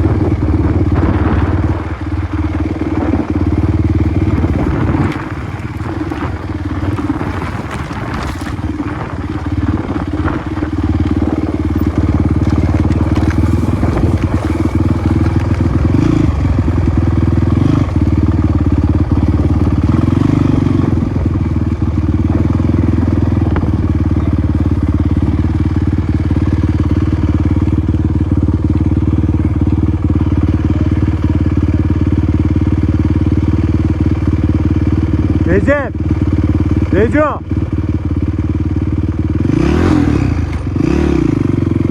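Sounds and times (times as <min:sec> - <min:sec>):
motorcycle engine running: 0:00.0 - 0:41.9
clattering and crunching: 0:04.4 - 0:09.3, 0:12.2 - 0:15.8.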